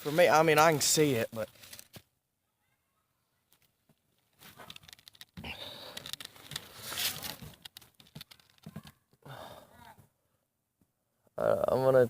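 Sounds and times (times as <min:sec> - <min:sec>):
rustling and scraping handling noise: 0:00.0 - 0:02.1, 0:03.4 - 0:09.2
scattered clicks: 0:04.6 - 0:09.0.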